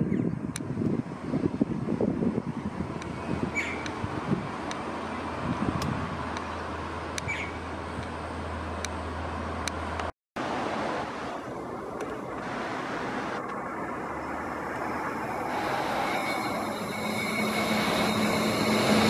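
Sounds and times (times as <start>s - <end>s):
road traffic noise: 0.0s - 19.0s
distant train rumble and hum: 11.3s - 19.0s.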